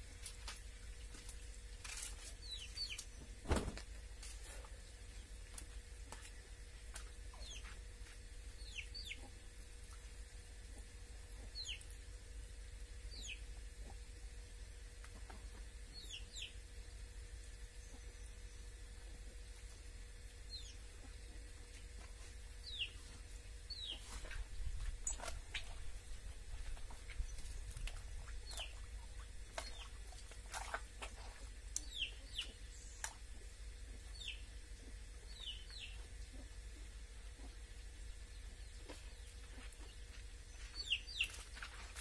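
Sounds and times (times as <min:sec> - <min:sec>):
faint low rumble: 0:00.0 - 0:42.0
birds chirping: 0:22.6 - 0:30.3, 0:31.8 - 0:33.1, 0:37.4 - 0:41.6.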